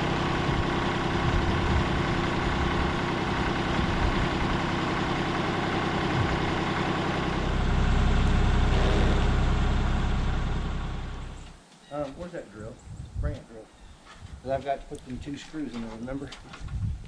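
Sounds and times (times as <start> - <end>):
tractor engine running: 0.0 - 11.6.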